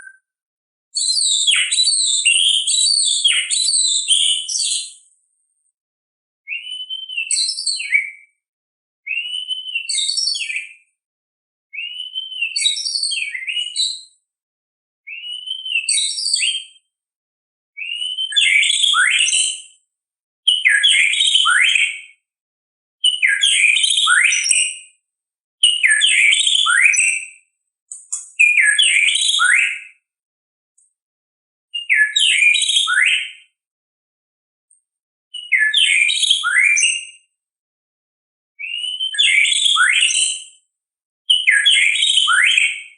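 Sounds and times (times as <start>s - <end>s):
bird whistled song: 0.0s - 0.3s, 1.0s - 5.1s, 6.4s - 8.4s, 9.1s - 10.9s, 11.7s - 14.2s, 15.1s - 16.8s, 17.8s - 19.8s, 20.5s - 22.2s, 23.0s - 25.0s, 25.6s - 30.1s, 31.8s - 33.6s, 35.3s - 37.3s, 38.6s - 40.6s, 41.3s - 42.9s.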